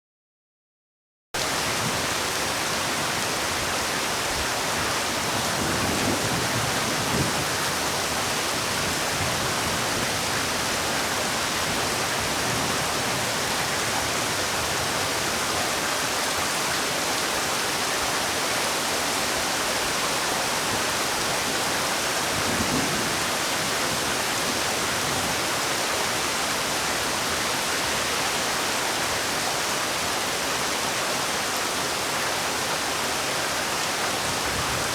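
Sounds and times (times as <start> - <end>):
loud rain spatters: 1.4 - 34.9
steady rainfall hiss: 1.4 - 34.9.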